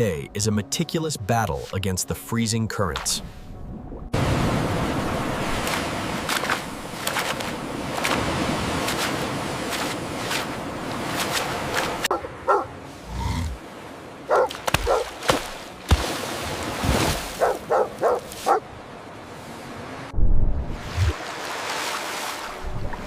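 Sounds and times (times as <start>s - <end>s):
rushing water: 4.1s - 20.1s, 20.7s - 23.0s
yelping animal calls: 12.1s - 13.6s.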